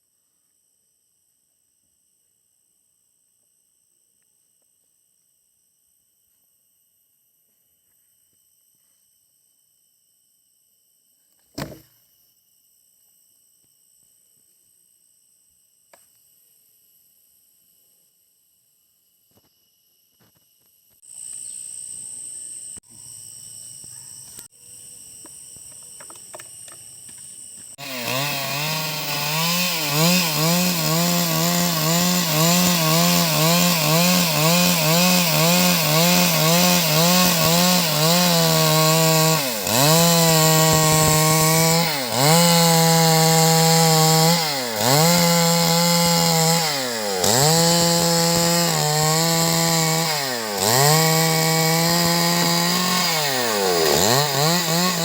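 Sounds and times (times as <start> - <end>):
chainsaw cutting wood: 11.4 - 12.0, 26.1 - 55.0.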